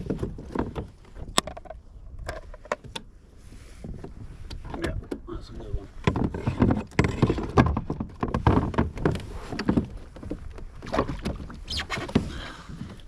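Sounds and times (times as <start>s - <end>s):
knocks and clatter on kayak: 0.0s - 3.1s, 3.8s - 13.0s
water splashing: 9.4s - 12.8s.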